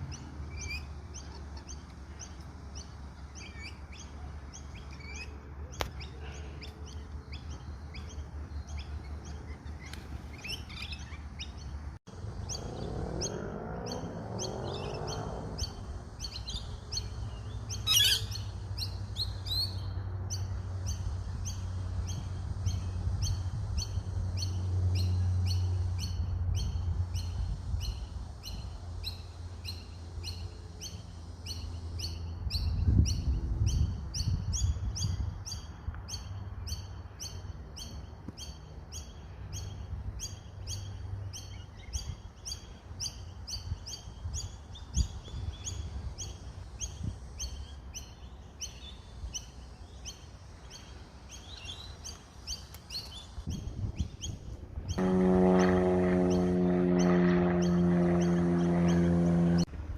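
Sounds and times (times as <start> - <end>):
bird chirping: 0.0 - 55.2.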